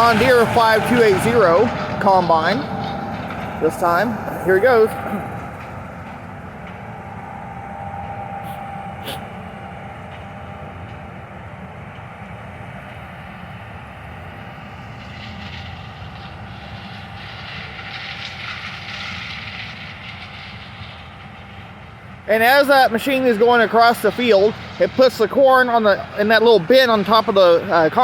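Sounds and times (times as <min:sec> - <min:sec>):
combine harvester rumble: 0:00.0 - 0:28.0
faint whine: 0:00.0 - 0:28.0
hiss: 0:08.4 - 0:09.6, 0:14.6 - 0:28.0.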